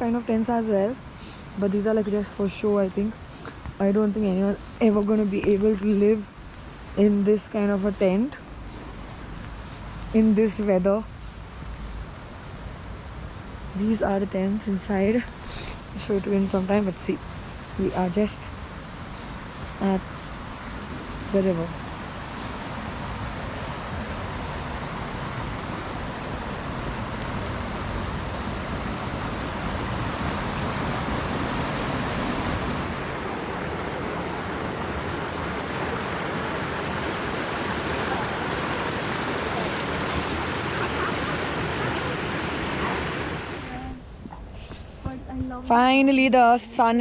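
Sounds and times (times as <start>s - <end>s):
river rushing: 23.5s - 44.0s.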